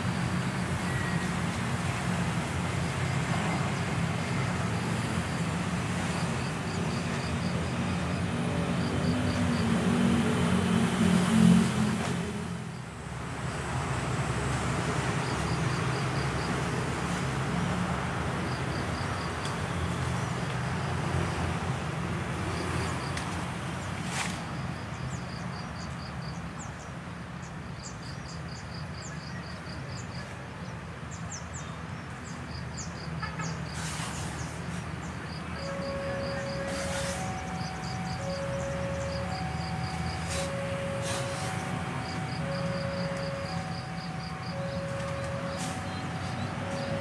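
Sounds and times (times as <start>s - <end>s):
low hum of standing trains: 0.0s - 47.0s
high chirping: 35.4s - 47.0s
two alternating steady tones: 35.6s - 47.0s.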